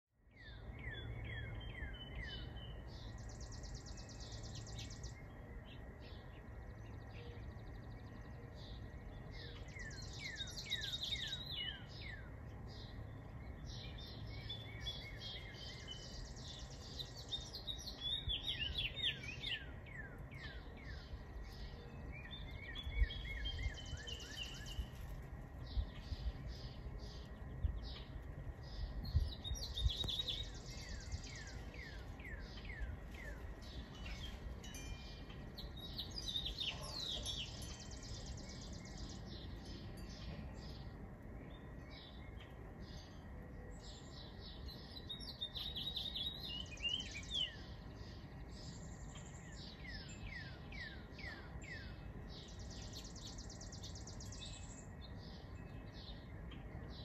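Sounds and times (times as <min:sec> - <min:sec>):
songbirds chirping: 0:00.1 - 0:57.0
low outdoor rumble: 0:00.2 - 0:57.0
bird trill: 0:00.4 - 0:57.0.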